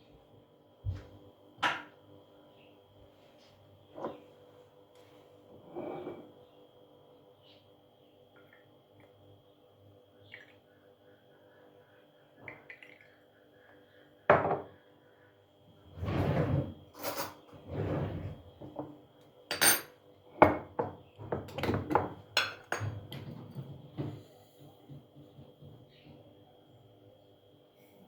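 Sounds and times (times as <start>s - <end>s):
dishes and cutlery clinking: 17.0s - 17.5s, 19.5s - 20.8s, 21.4s - 23.4s.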